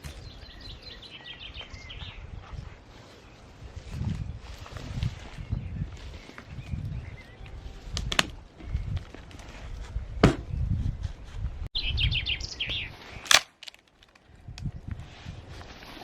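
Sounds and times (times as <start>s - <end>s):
songbird chirping: 0.0s - 7.7s, 11.8s - 13.2s
sharp knocks: 10.2s - 10.6s.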